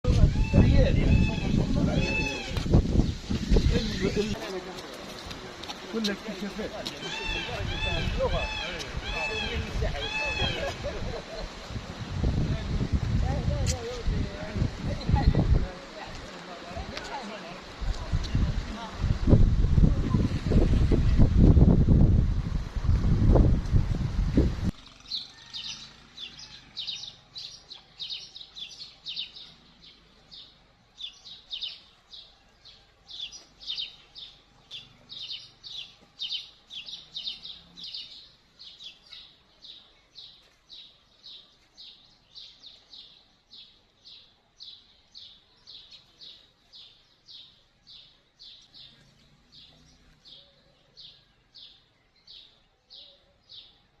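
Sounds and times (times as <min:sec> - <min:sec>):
bird chirping: 0:24.8 - 0:54.0.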